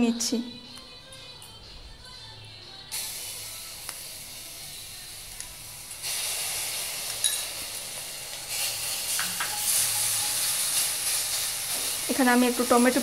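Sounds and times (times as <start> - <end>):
paste sizzling in a pan: 2.9 - 13.0.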